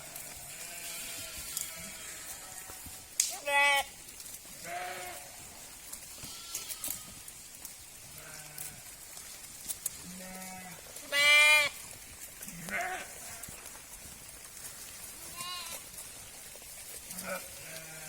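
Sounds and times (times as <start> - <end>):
sheep bleating: 0.0 - 4.0, 4.6 - 5.4, 6.1 - 7.3, 8.1 - 8.8, 10.0 - 11.8, 12.4 - 13.6, 15.2 - 15.9, 17.1 - 18.0.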